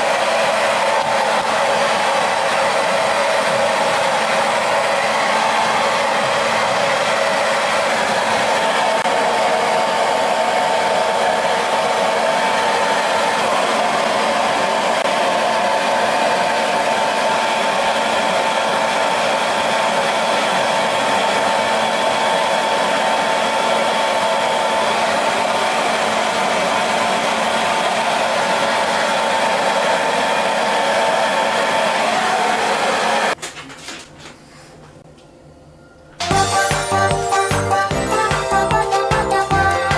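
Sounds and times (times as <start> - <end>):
hair dryer blowing: 0.0 - 33.4.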